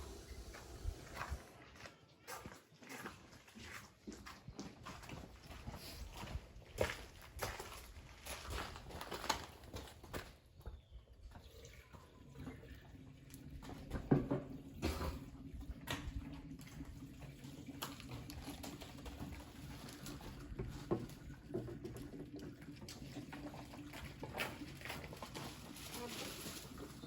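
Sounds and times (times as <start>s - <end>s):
water running into radiator: 11.2s - 25.8s.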